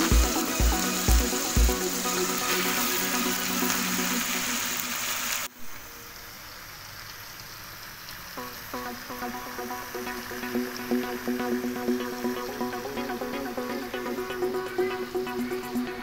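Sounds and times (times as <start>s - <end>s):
background music with plucked notes: 0.0s - 4.6s, 8.4s - 16.0s
food sizzling in a pan: 0.0s - 16.0s.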